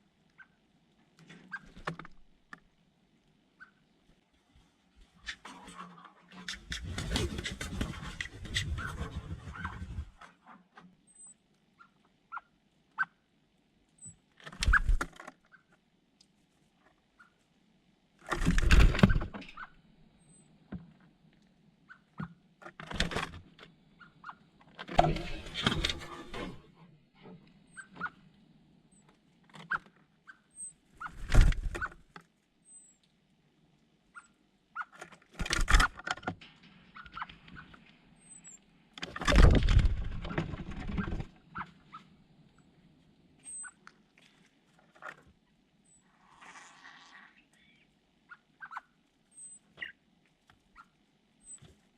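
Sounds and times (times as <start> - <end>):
birds rustling: 4.9 - 10.6, 14.4 - 15.3, 30.8 - 32.2, 34.8 - 48.9.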